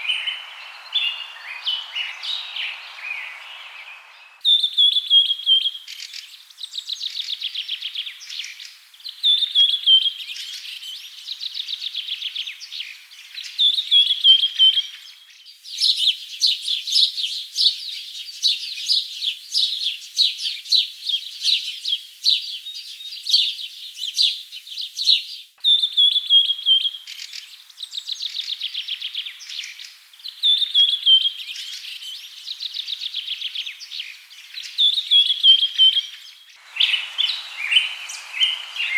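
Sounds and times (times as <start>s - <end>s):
bird chirping quickly: 0.0s - 5.5s, 36.6s - 38.9s
songbird whistle and trill: 0.0s - 5.9s, 21.2s - 29.6s, 30.3s - 33.3s, 34.8s - 38.9s.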